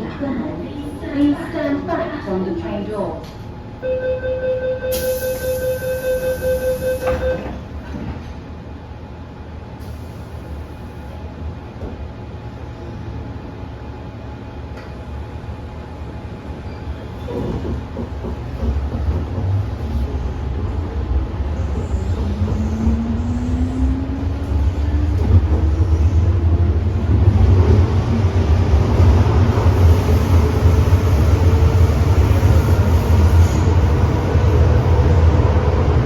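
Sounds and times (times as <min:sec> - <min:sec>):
train wheels rumbling on track: 0:13.8 - 0:36.0.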